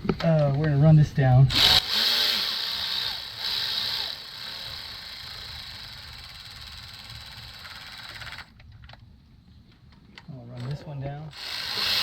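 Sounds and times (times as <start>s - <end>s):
power tool motor whirring: 1.5s - 8.4s, 11.3s - 12.0s.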